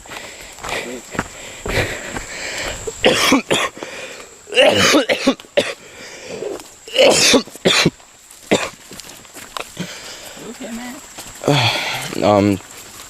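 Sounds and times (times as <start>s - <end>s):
person coughing hard: 3.0s - 3.8s, 4.5s - 5.8s, 6.9s - 7.9s, 8.5s - 8.8s.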